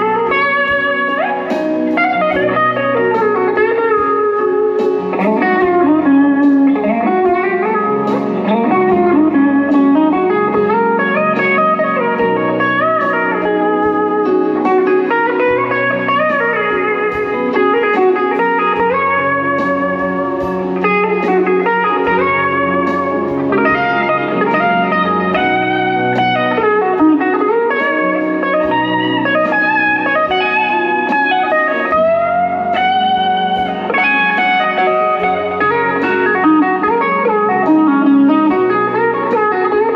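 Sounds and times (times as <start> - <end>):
bass notes: 0.0 - 39.9
slow blues guitar: 0.0 - 39.9.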